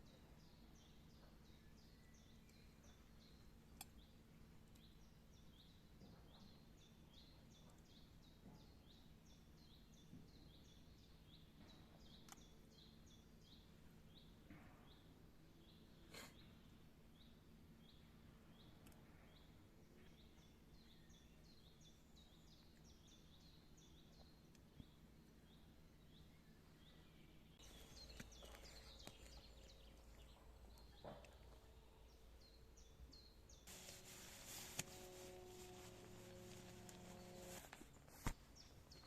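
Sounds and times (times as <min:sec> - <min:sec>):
bird chirping: 0:17.2 - 0:39.0
rustling with clicks: 0:33.7 - 0:39.0.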